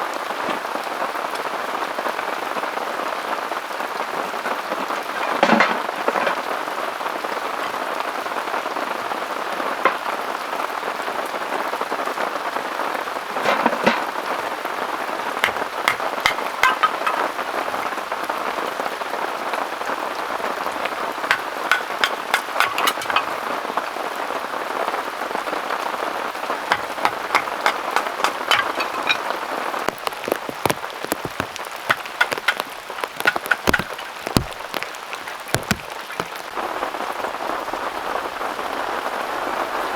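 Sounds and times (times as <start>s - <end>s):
raindrops striking close by: 26.7s - 38.8s.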